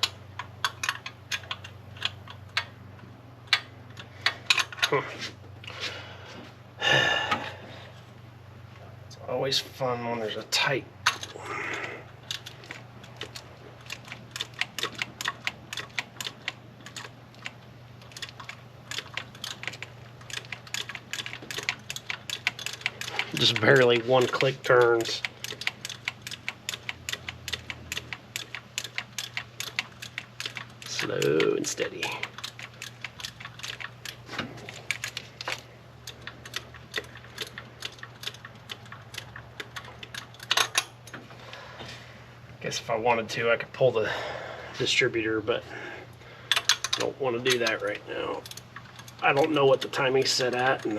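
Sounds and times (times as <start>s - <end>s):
ratchet wrench clicking: 0.0s - 2.7s, 12.2s - 34.2s, 34.8s - 41.0s, 46.5s - 50.9s.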